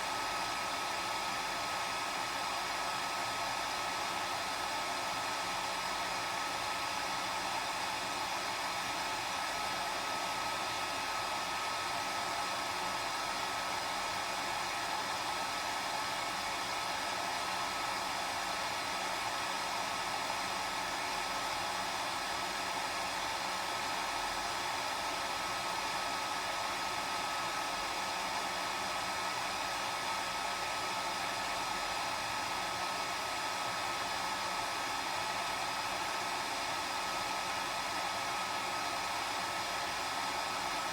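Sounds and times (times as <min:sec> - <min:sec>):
hair dryer running: 0:00.0 - 0:40.9.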